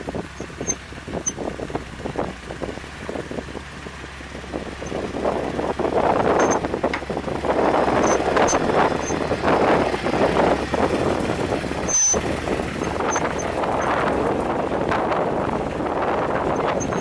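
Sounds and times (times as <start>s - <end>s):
vehicle rumbling over rough ground: 0.0s - 17.0s
wind buffeting microphone: 0.0s - 17.0s
short high squeaks: 0.3s - 1.5s, 4.7s - 5.2s, 6.2s - 7.1s, 7.8s - 9.5s, 11.7s - 14.2s, 16.5s - 17.0s.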